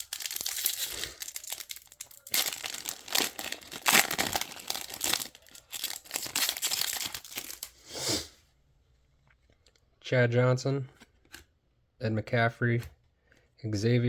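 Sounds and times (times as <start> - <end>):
cards and packaging crinkling: 0.0 - 7.8.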